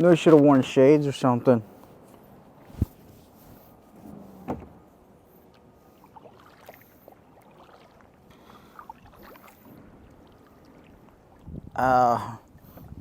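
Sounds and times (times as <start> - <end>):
water splashing and dripping: 6.1 - 11.7.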